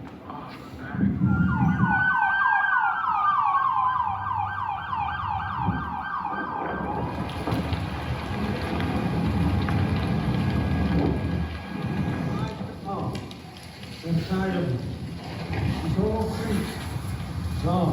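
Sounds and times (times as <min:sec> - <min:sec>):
siren slow wail: 0:01.1 - 0:11.9
siren fast yelp: 0:01.2 - 0:07.1.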